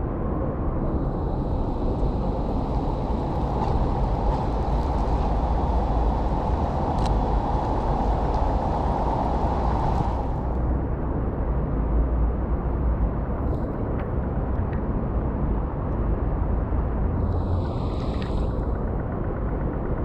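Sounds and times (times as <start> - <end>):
heavy rain pouring: 1.0 - 10.5
faint clicks: 2.0 - 8.6.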